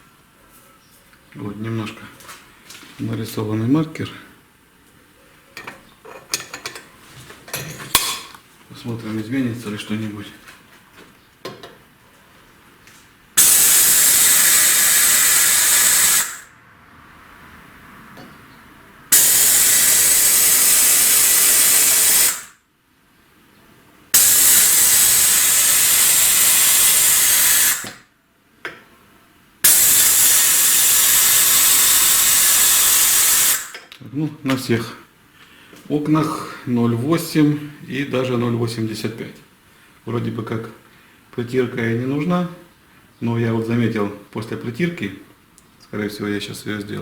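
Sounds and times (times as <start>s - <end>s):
vacuum tester hissing: 13.4s - 16.5s, 19.1s - 22.6s, 24.2s - 28.0s, 29.6s - 33.8s.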